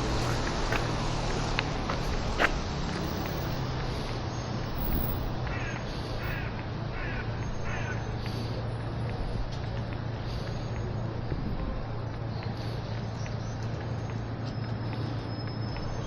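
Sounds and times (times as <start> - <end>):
street background hum: 0.0 - 16.0
crow cawing: 5.4 - 8.1.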